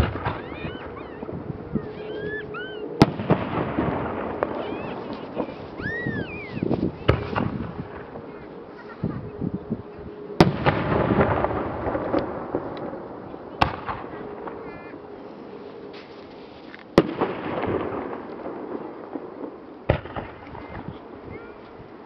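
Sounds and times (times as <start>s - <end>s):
firework crackling: 0.0s - 1.4s, 2.0s - 8.9s, 16.2s - 21.3s.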